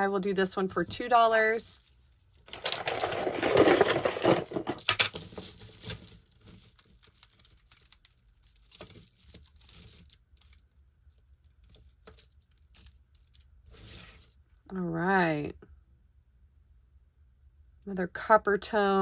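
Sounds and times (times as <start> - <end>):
metal chains jingling: 1.2 - 7.9.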